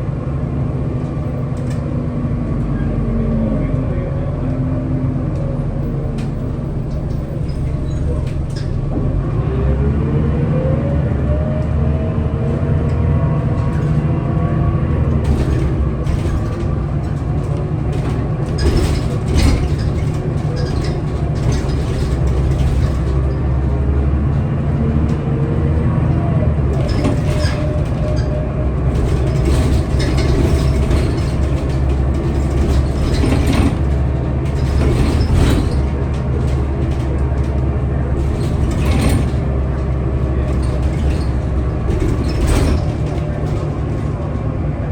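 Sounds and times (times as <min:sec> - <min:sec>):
bus engine drone: 0:00.0 - 0:44.9
body rattles and knocks: 0:11.9 - 0:44.9.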